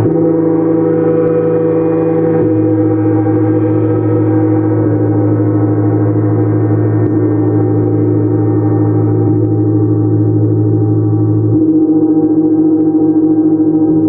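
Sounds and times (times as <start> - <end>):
gongs ringing: 0.0 - 12.1
deep hum: 0.0 - 14.0.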